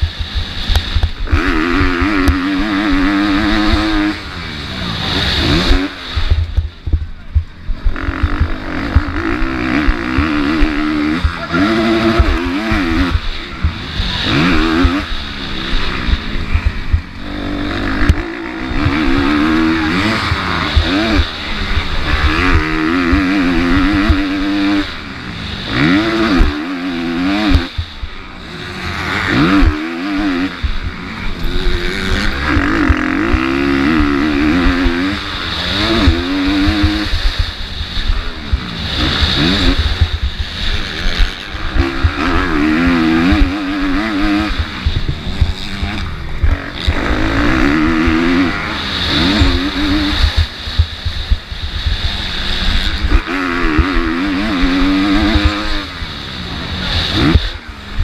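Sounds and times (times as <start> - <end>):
motocross bike engine revving: 0.0 - 58.0
wind buffeting microphone: 29.3 - 58.0.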